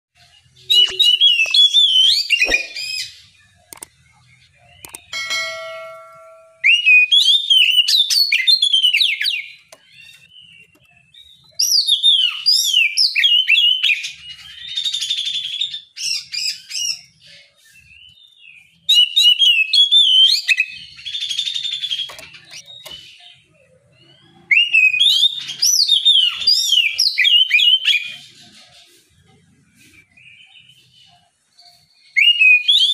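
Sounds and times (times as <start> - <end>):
quiet bird twittering: 0.2 - 32.8
bird singing whistled phrases: 0.6 - 3.9, 6.6 - 10.3, 11.3 - 17.2, 18.8 - 23.4, 24.5 - 28.2, 32.0 - 32.9.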